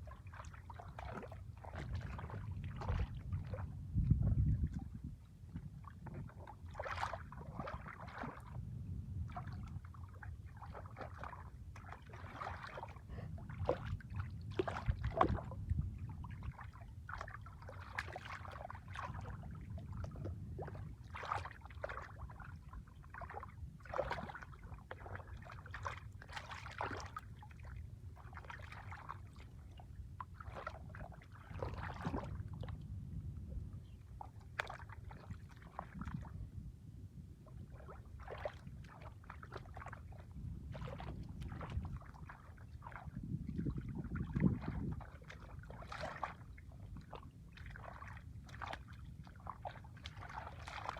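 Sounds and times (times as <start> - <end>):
water splashing and sloshing: 0.0 - 50.9.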